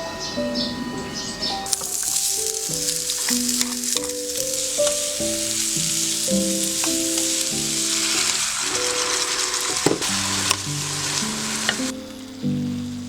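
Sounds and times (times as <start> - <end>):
gentle background music: 0.0 - 13.0
stirring ticks: 1.7 - 11.9
food sizzling in a pan: 1.7 - 13.0.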